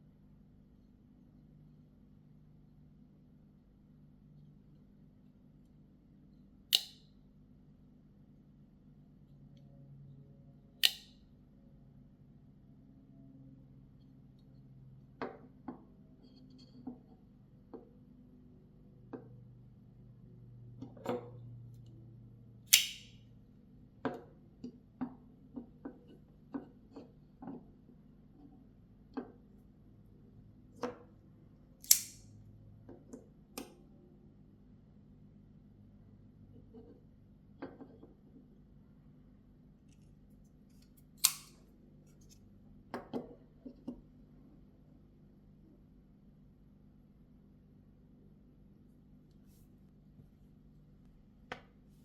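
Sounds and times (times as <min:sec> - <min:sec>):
folding knife metallic snap: 0:06.8 - 0:07.0, 0:10.8 - 0:11.2, 0:22.7 - 0:23.2, 0:31.8 - 0:32.3, 0:41.2 - 0:41.6
knife clicks and taps: 0:06.8 - 0:07.0, 0:10.8 - 0:11.2, 0:22.7 - 0:23.2, 0:31.8 - 0:32.2, 0:40.7 - 0:41.6.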